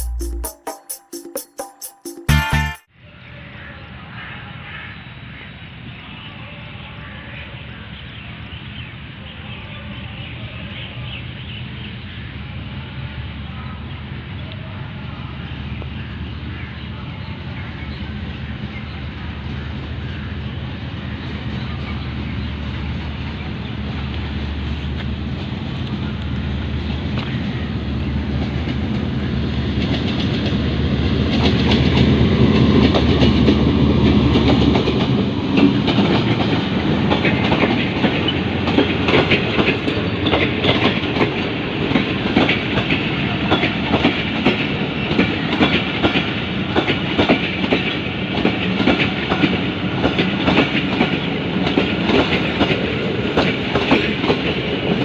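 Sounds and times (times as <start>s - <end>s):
railcar train droning: 2.3s - 55.0s
clickety-clack of wheels over rail joints: 21.0s - 55.0s.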